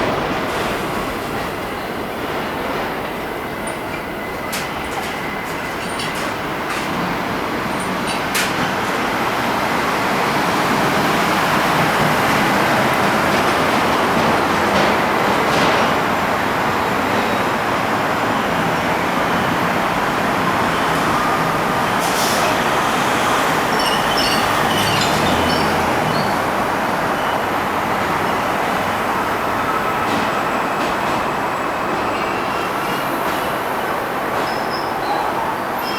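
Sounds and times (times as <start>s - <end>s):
subway train rumbling on rails: 0.0s - 35.9s
high wheel squeals: 20.2s - 35.9s.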